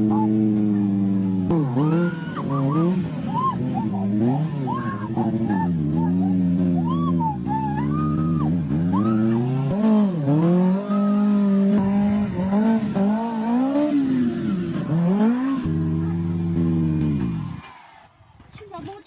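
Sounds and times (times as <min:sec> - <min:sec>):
motorcycle engine revving: 0:00.0 - 0:18.6.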